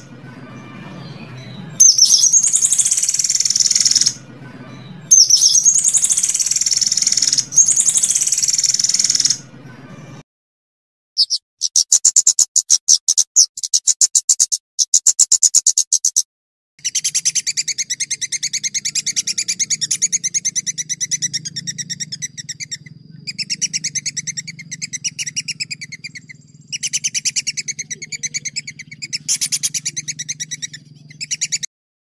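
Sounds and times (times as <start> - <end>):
songbird rapid trill: 0.0 - 9.5, 11.2 - 16.2, 16.8 - 31.7.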